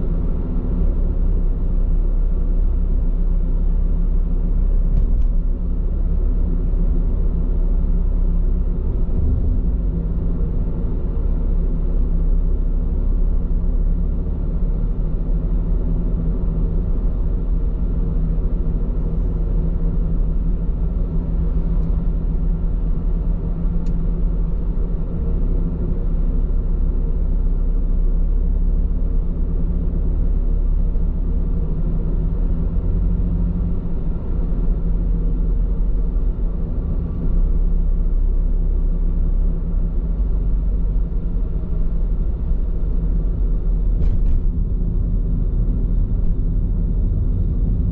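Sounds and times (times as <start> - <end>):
car road and tyre noise: 0.0 - 47.9.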